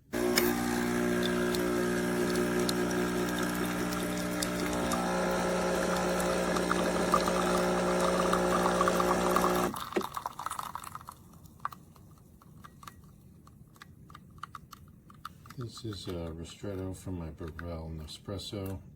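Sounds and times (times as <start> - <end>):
espresso machine pump humming: 0.0 - 10.2.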